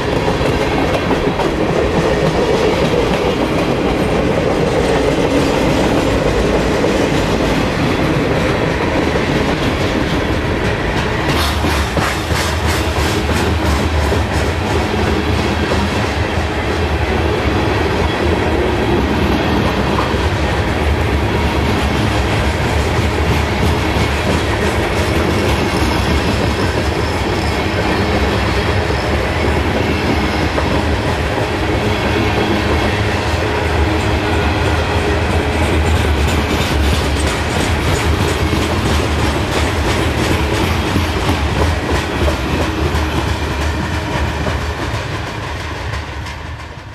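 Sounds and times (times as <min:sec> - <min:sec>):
freight train passing: 0:00.0 - 0:46.9.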